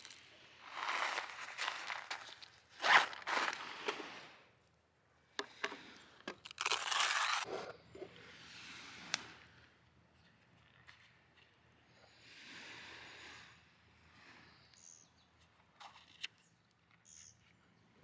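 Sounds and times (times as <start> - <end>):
rustling and scraping: 0.0 - 4.4, 5.4 - 8.2.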